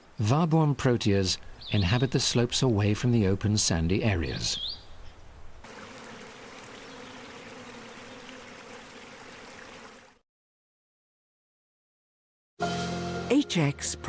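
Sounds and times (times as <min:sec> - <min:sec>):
outdoor hiss: 0:05.6 - 0:10.2.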